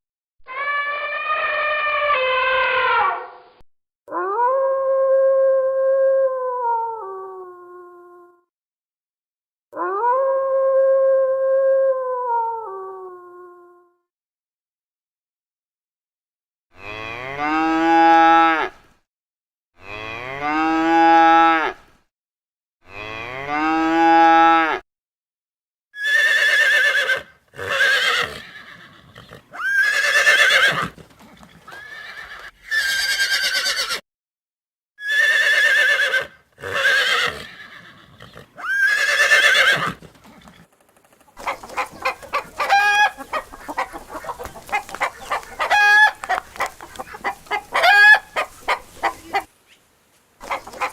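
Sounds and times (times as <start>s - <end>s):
chickens clucking: 40.0s - 49.8s, 50.4s - 50.9s
higher wavering animal calls: 41.4s - 49.5s.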